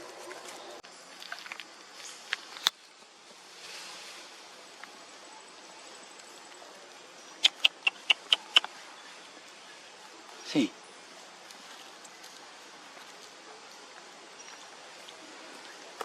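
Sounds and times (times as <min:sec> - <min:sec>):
high-pitched animal chirps: 0:07.4 - 0:08.7.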